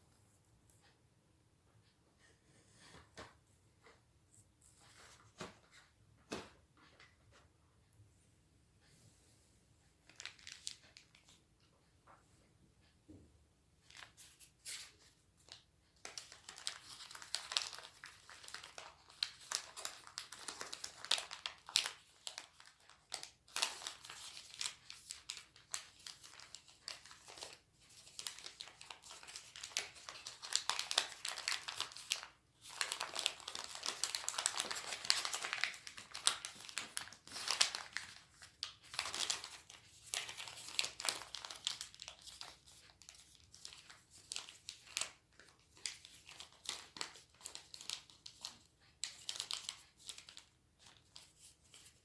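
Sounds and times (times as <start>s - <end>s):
paper being folded and crinkling: 10.0s - 11.4s, 13.8s - 52.0s.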